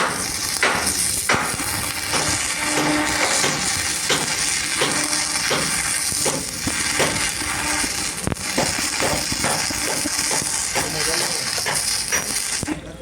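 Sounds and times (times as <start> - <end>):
steady hiss: 0.0 - 12.9.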